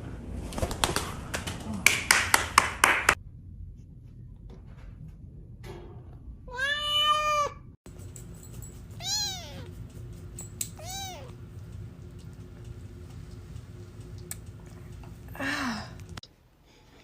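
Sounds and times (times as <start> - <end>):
cat meowing: 6.5 - 7.6, 9.0 - 9.7, 10.7 - 11.4.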